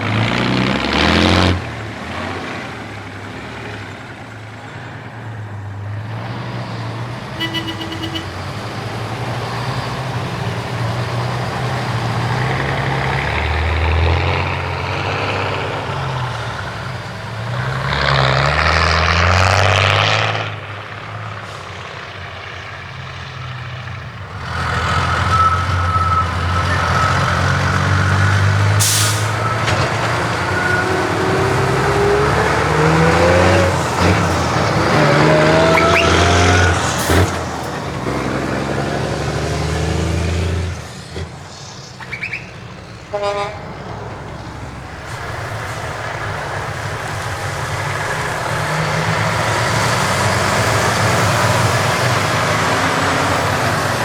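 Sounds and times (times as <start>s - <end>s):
heavy truck diesel engines: 0.0s - 54.0s
air brake hisses: 28.7s - 29.6s.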